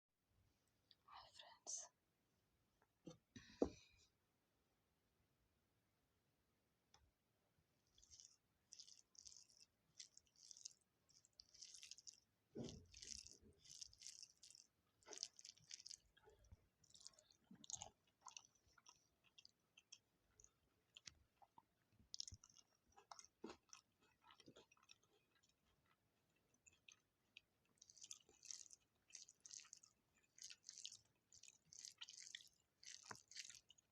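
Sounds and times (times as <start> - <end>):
person chewing food: 7.9 - 33.9.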